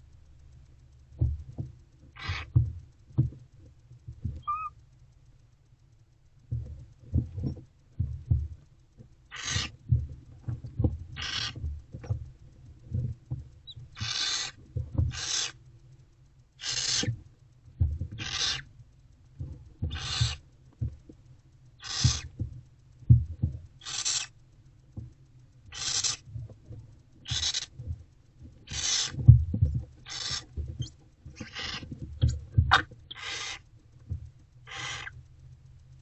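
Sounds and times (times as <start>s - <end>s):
soft bumps and scuffles: 1.2s - 4.6s, 6.5s - 14.1s
owlets hissing begging calls: 2.2s - 2.5s, 4.4s - 4.7s, 9.3s - 9.7s, 11.2s - 11.6s, 14.0s - 14.5s, 15.2s - 15.6s, 16.6s - 17.1s, 18.2s - 18.6s, 19.9s - 20.4s, 21.8s - 22.2s, 30.1s - 30.4s, 32.7s - 33.6s, 34.7s - 35.1s.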